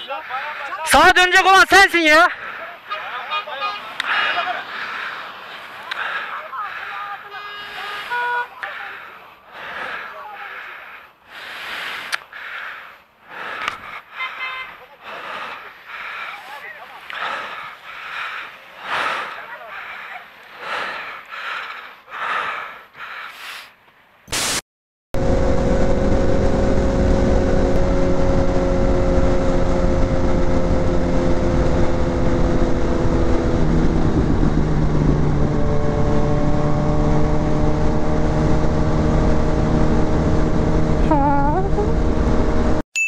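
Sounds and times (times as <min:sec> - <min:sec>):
motorcycle engine cruising: 0:25.2 - 0:42.8
wind rumble on microphone: 0:25.2 - 0:42.8.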